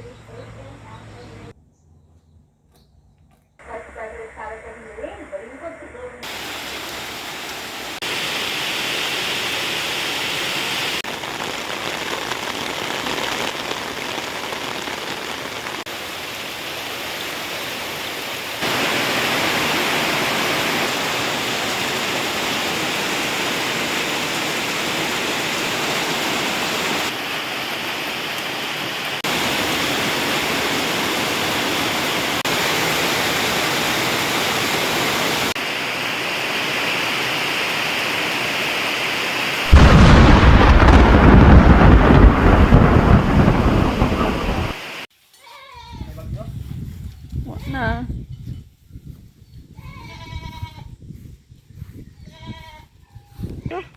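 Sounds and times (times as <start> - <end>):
heavy rain pouring: 6.2 - 45.1.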